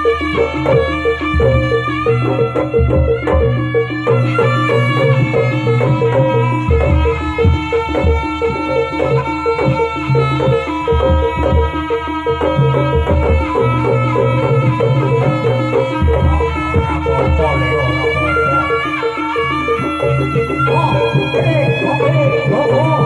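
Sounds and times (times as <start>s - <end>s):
drums and percussion: 0.0s - 23.0s
sustained melodic instruments: 0.0s - 23.0s
repeating bass line: 12.4s - 23.0s.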